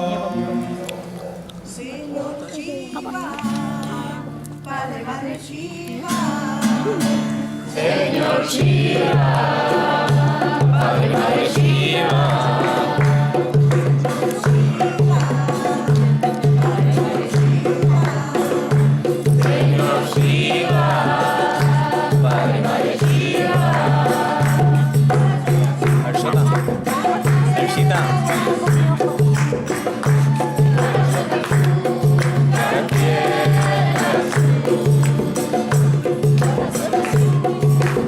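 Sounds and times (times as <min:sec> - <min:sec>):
voices chanting together: 0:07.7 - 0:13.8, 0:14.5 - 0:29.2, 0:30.3 - 0:35.6.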